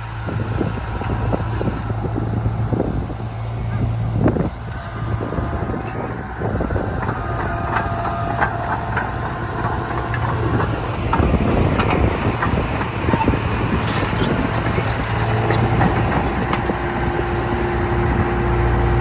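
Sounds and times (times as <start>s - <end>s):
diesel machinery droning: 0.0s - 19.0s
sharp metallic squeaks and clicks: 5.8s - 6.2s, 7.8s - 10.4s, 13.0s - 16.4s.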